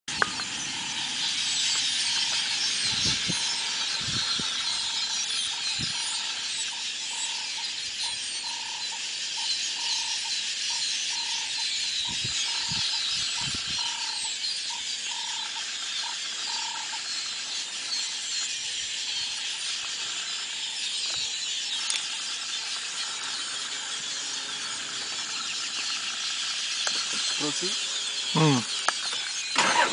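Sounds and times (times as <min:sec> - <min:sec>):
flock of birds chattering: 0:00.1 - 0:29.9.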